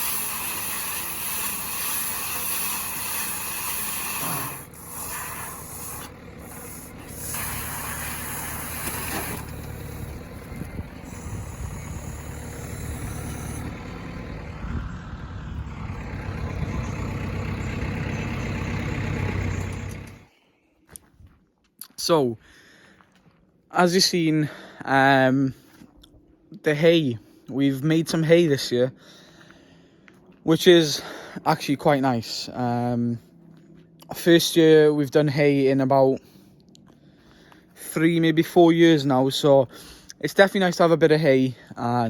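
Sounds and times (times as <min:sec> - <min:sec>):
strong hiss: 0:00.0 - 0:13.8
tractor engine hum: 0:00.0 - 0:20.3.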